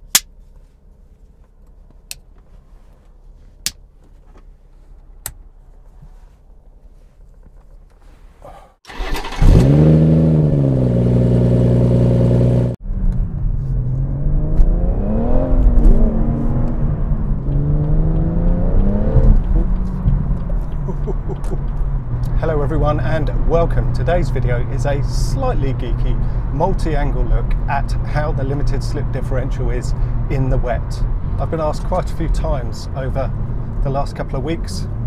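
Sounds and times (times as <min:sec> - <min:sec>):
car engine revving: 0:08.9 - 0:22.3.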